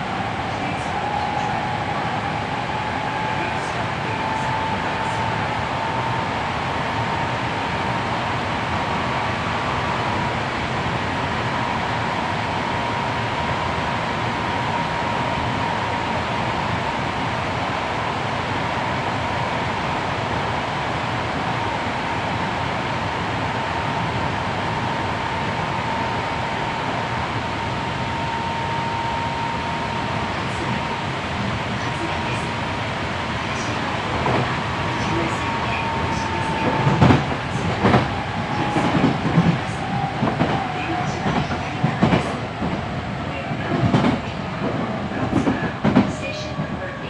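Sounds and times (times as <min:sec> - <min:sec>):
constant high whine: 0:00.0 - 0:41.8
rumble of train wheels: 0:00.0 - 0:47.0.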